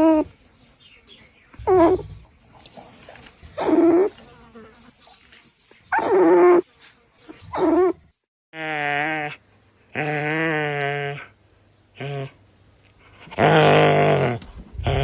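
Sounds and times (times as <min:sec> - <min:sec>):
dog whining: 0:00.0 - 0:00.3, 0:01.6 - 0:02.2, 0:03.6 - 0:04.2, 0:05.9 - 0:06.6, 0:07.5 - 0:08.0.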